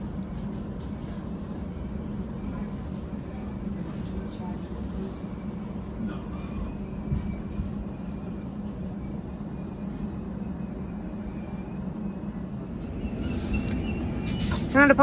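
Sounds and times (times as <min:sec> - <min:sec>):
electric train humming: 0:11.0 - 0:15.0.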